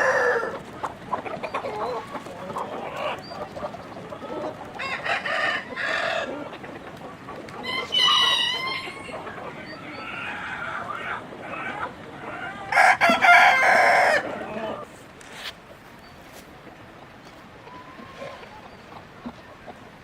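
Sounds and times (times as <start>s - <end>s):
rooster crowing: 0.0s - 0.5s, 7.6s - 9.1s, 12.6s - 14.3s
chicken calling: 0.0s - 16.4s, 17.2s - 20.0s.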